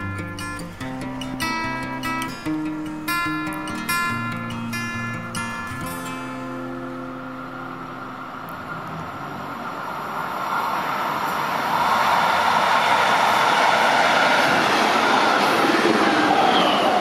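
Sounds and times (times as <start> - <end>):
train wheels rushing on rails: 7.6 - 17.0.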